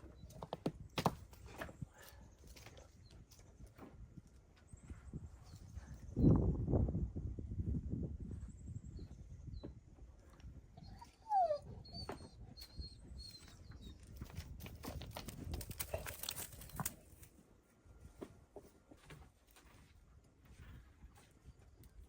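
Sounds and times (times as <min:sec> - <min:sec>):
dog whining: 0:10.8 - 0:13.9.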